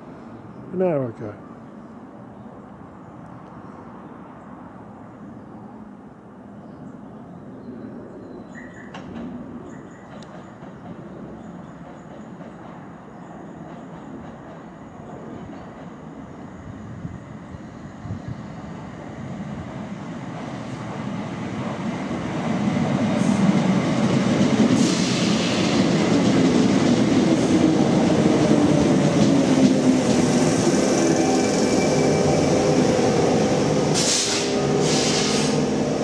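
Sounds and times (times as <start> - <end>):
steady train whine: 4.1 - 36.0
electric train arriving: 8.6 - 36.0.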